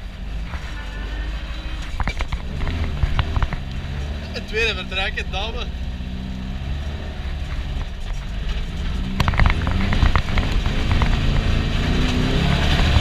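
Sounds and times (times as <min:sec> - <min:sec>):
car engine revving: 0:00.0 - 0:13.0
sharp knocks and rattles: 0:01.8 - 0:04.4, 0:07.3 - 0:13.0.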